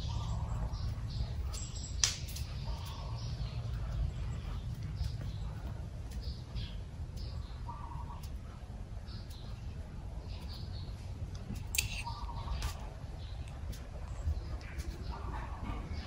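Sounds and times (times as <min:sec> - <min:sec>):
small birds chirping: 0:00.0 - 0:16.0
steady low rumble: 0:00.0 - 0:16.0
sharp click: 0:01.5 - 0:03.0, 0:11.6 - 0:12.9.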